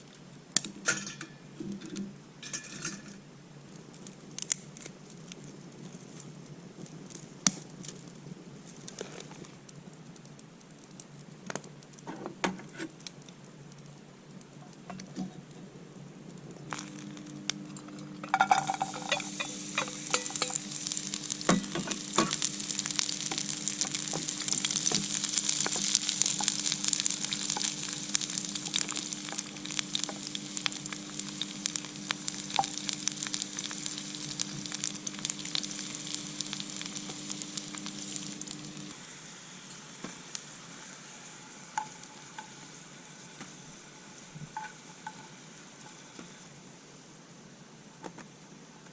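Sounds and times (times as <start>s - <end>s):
food sizzling in hot pan: 16.7s - 47.1s
stirring clicks: 17.8s - 35.7s
utensils clicking and knocking: 18.2s - 20.7s.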